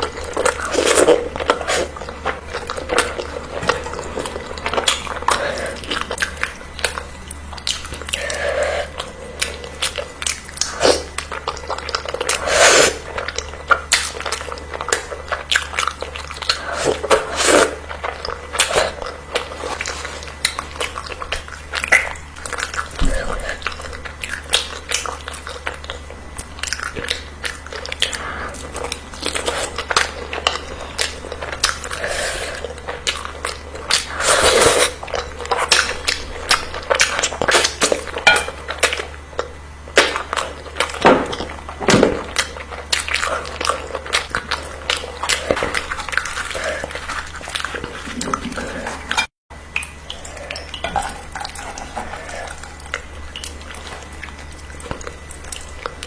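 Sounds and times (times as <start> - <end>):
person chewing: 0.0 - 56.0
cutlery clinking on dishes: 38.3 - 38.6.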